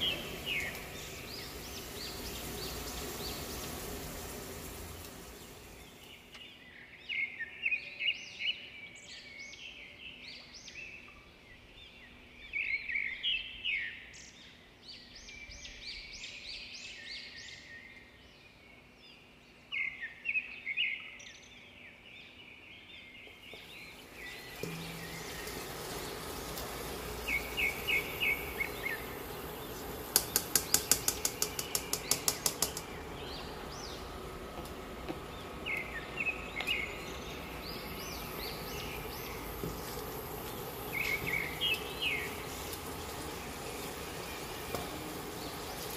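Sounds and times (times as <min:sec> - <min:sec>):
small birds chirping: 0:00.0 - 0:45.9
low background hum: 0:23.4 - 0:45.9
rapid sharp clicks: 0:30.1 - 0:33.0.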